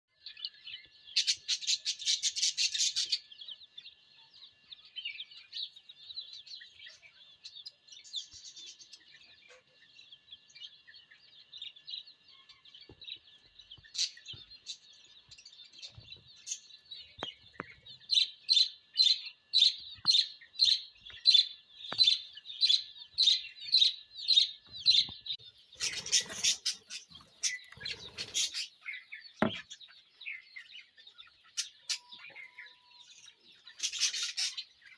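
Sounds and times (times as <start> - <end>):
lovebirds chirping shrilly: 15.7 - 30.5, 33.6 - 34.9.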